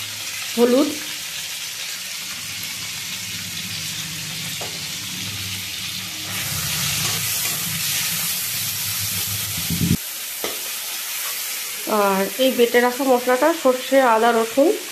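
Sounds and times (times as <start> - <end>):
tomatoes sizzling in hot oil: 0.0 - 14.9
metal spatula scraping pan: 3.8 - 11.9.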